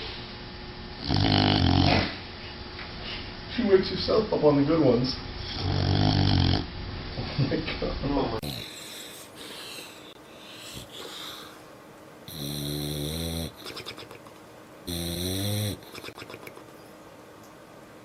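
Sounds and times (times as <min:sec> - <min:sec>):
dog snoring: 0:01.0 - 0:02.2, 0:05.4 - 0:06.7, 0:08.4 - 0:11.6, 0:12.3 - 0:14.1, 0:14.8 - 0:16.5
dog breathing quietly: 0:08.4 - 0:11.7.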